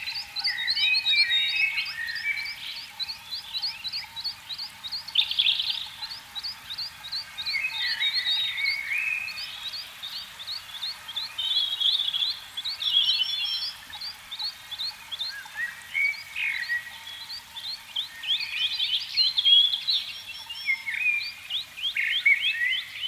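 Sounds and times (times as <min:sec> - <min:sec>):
frogs chirping: 0:00.1 - 0:16.0.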